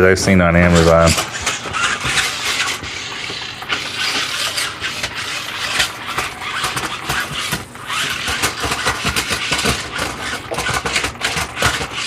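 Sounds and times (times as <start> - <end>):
toy truck motors whirring: 0.6 - 12.0.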